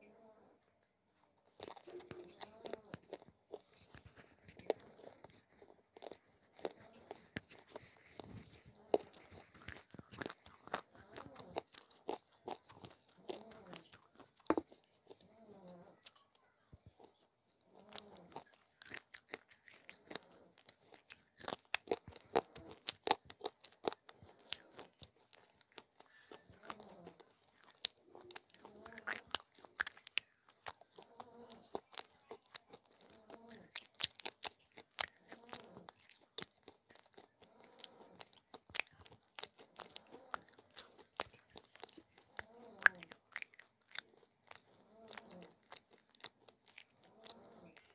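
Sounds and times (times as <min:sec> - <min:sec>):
wet mouth sounds: 0:01.4 - 0:16.2.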